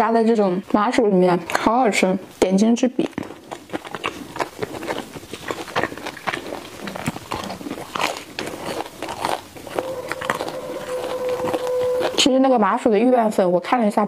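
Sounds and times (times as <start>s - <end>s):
crispy bun crunching: 2.9s - 12.3s
wet mouth clicks: 3.0s - 12.3s.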